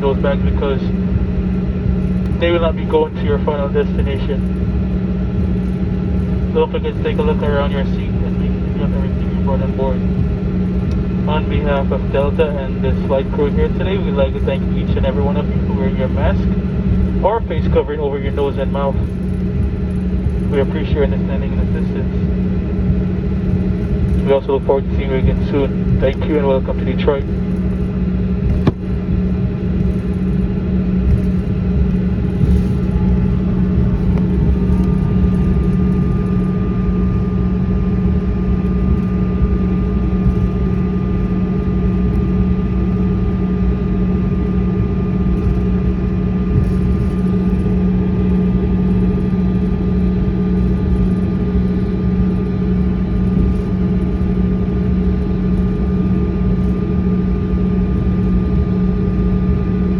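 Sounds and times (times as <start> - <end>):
jet engines idling drone: 0.0 - 59.8.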